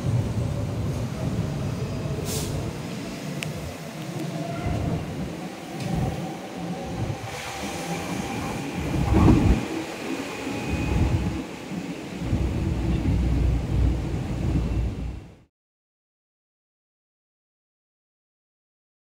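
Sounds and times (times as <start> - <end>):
electric train rumbling on track: 0.0 - 15.5
train wheel clatter: 7.2 - 13.5.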